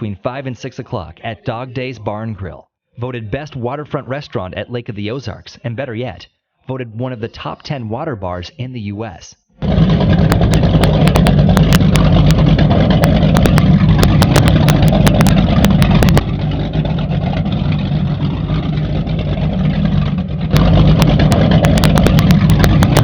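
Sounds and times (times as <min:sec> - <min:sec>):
sharp clicks and pops: 0:09.6 - 0:17.6, 0:18.5 - 0:23.0
powerboat engines droning: 0:09.6 - 0:23.0.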